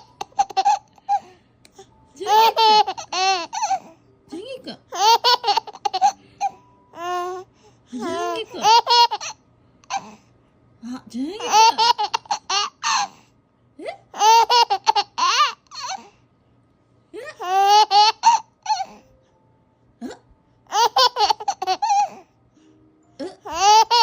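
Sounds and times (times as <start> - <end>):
baby laughing: 0.0 - 1.3, 2.2 - 3.9, 4.9 - 7.3, 8.0 - 10.1, 11.4 - 13.2, 14.1 - 16.1, 17.3 - 19.0, 20.1 - 22.2, 23.2 - 24.0.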